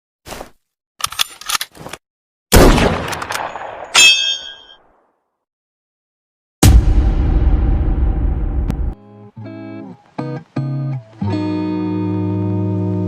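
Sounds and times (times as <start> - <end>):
loud gunshot: 2.5 - 3.9, 6.6 - 8.5
metallic clang: 4.0 - 4.9.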